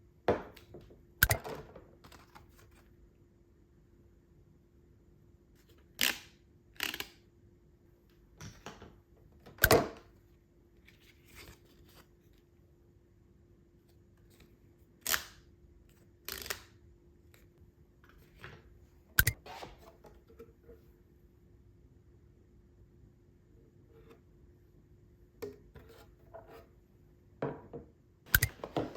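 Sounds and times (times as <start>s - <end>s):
faint steady hum: 0.0s - 28.9s
household items being handled: 28.3s - 28.9s.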